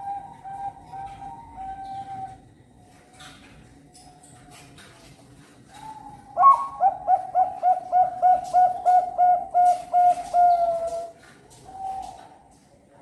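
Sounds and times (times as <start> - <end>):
dove cooing: 0.0 - 2.4, 5.7 - 12.6.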